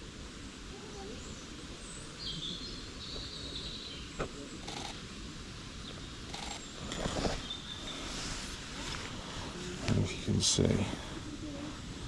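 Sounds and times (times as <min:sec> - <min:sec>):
small bird singing: 0:00.8 - 0:05.0, 0:05.8 - 0:08.3.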